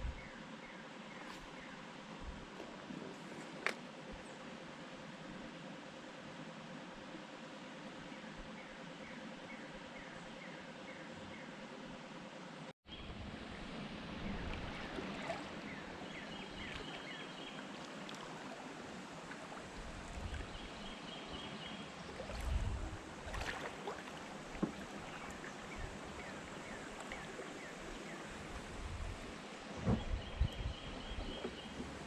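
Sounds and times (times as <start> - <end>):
light wind: 0.0 - 32.0
water flowing: 13.2 - 30.0.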